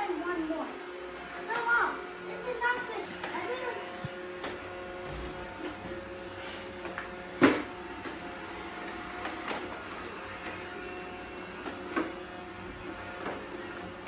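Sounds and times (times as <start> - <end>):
low mechanical hum: 0.0 - 14.0
plastic knock of robot vacuum: 7.4 - 7.7.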